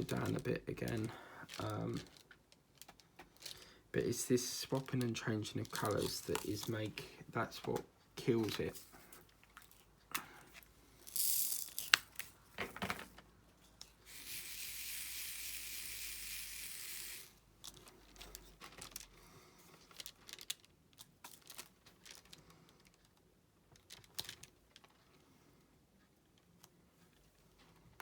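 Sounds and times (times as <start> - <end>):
plastic film peeling: 4.4 - 7.6, 19.9 - 23.1.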